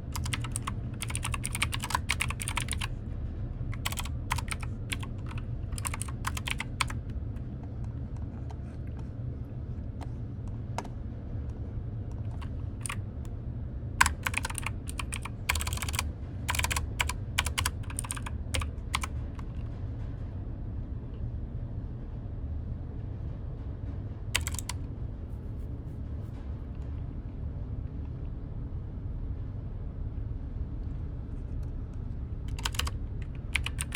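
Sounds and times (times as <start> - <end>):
typing on a keyboard: 0.0 - 2.9, 3.6 - 7.0, 12.2 - 13.0, 14.0 - 19.6, 24.4 - 24.8, 32.5 - 33.9
steady low hum: 0.0 - 33.9.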